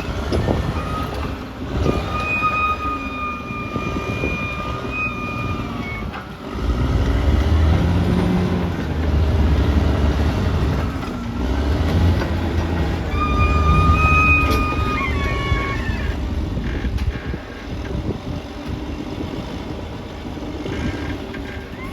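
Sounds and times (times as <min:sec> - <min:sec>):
high steady squeal: 0:00.0 - 0:06.3, 0:13.0 - 0:17.4
bulldozer diesel engine: 0:00.0 - 0:21.9.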